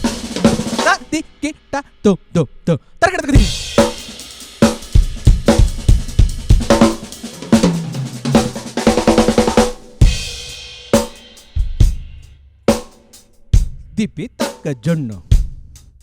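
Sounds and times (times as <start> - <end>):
drum kit playing fast: 0.0 - 2.0, 3.0 - 16.0
person reciting rhythm syllables: 0.6 - 3.9, 13.6 - 16.0.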